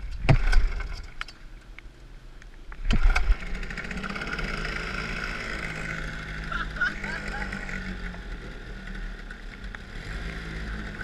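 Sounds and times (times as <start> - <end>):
small motorcycle engine running: 2.9 - 11.0.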